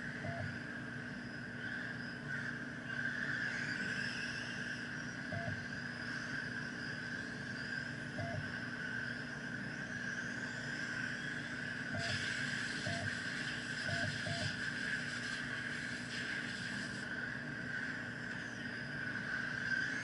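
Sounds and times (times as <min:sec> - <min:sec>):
steady hiss: 0:12.0 - 0:17.1.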